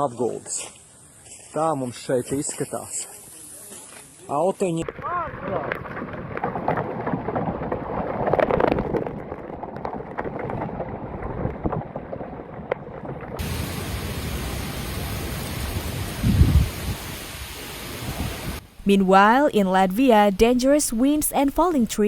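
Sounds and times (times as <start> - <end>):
heavy rain pouring: 13.4 - 18.6.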